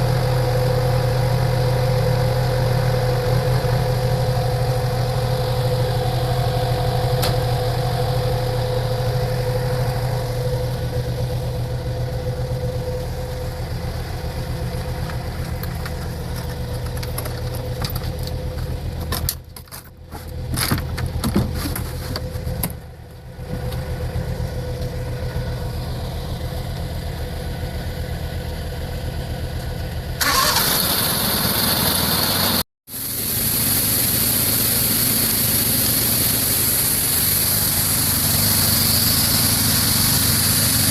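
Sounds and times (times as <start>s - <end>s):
machine engine humming: 0.0s - 40.9s
loud hissing noise: 30.3s - 40.9s.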